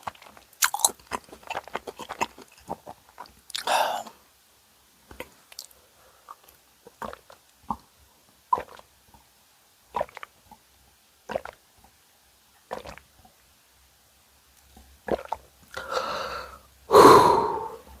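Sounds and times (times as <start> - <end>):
loud noisy eating sounds: 0.0 - 4.1
close eating mouth sounds: 0.0 - 4.2, 5.1 - 8.9, 9.9 - 10.4, 11.2 - 11.6, 12.7 - 13.1, 15.0 - 16.1.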